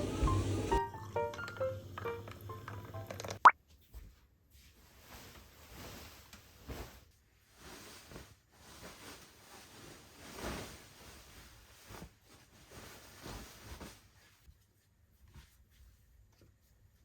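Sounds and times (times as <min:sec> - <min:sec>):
faint rustling and handling noises: 0:03.6 - 0:17.0.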